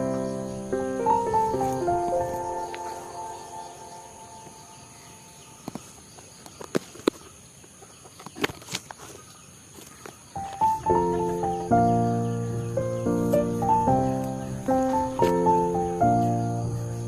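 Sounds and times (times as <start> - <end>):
insect trill: 0.0 - 17.0
background music: 10.5 - 17.0.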